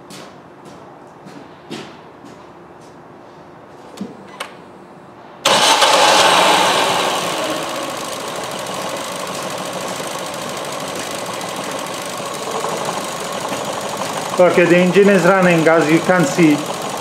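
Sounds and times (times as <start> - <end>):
car engine starting and idling: 5.4 - 17.0.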